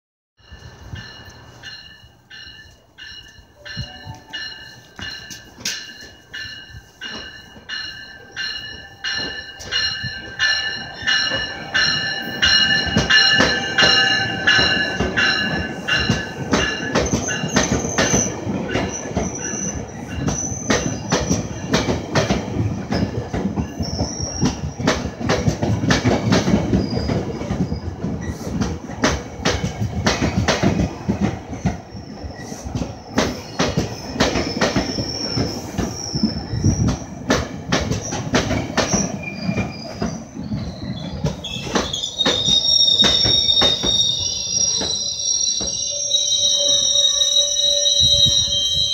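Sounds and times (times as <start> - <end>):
train wheels clicking over rail joints: 0.4 - 45.9
steady train rumble: 0.4 - 48.9
high-pitched wheel squeal: 39.0 - 48.9.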